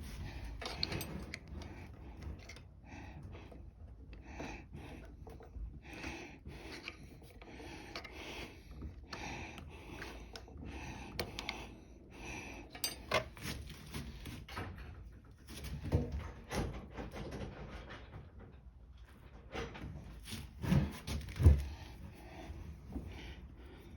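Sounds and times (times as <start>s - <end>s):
hand tools scraping rubber hose: 0.0s - 3.6s.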